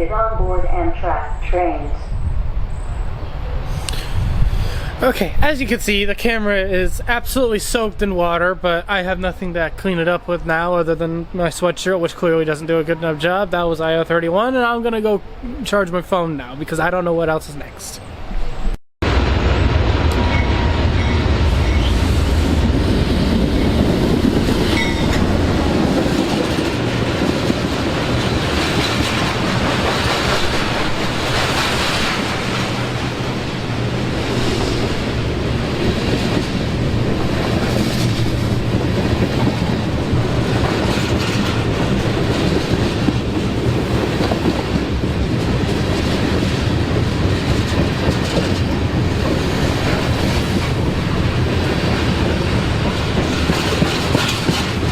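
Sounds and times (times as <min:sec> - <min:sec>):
train wheels clattering: 0:20.1 - 0:33.4, 0:34.2 - 0:54.9.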